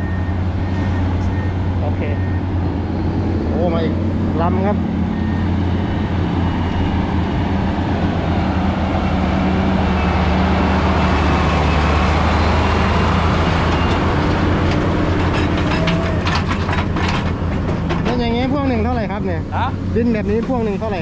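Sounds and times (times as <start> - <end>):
diesel truck engine drone: 0.0 - 21.0
rattling knocks: 14.7 - 18.5.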